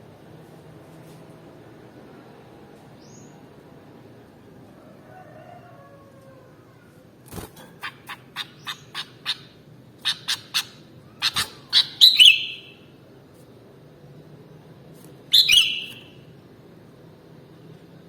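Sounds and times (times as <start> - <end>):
bird longer call: 11.2 - 12.8.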